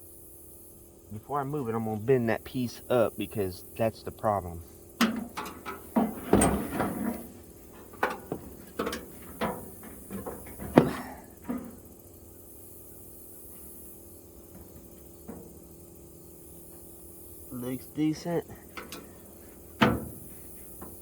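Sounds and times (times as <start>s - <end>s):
metal taps and clanks: 5.0s - 11.8s, 14.5s - 15.6s, 18.7s - 21.0s.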